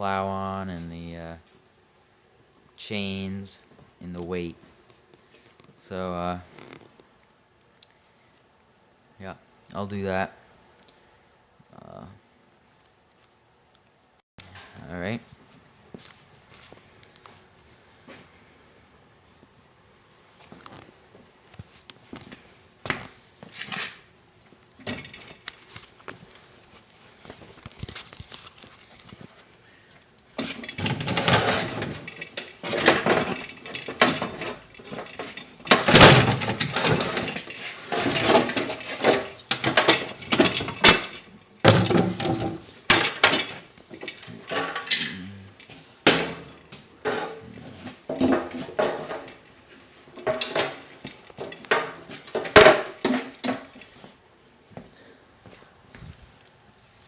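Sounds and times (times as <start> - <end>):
metal tools clanking and scraping: 24.8 - 25.5, 30.4 - 49.5, 50.2 - 54.0.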